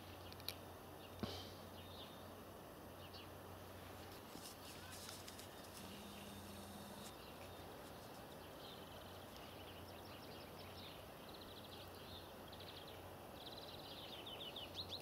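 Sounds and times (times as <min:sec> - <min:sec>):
small birds chirping: 0:00.0 - 0:15.0
steady low hum: 0:01.5 - 0:07.9.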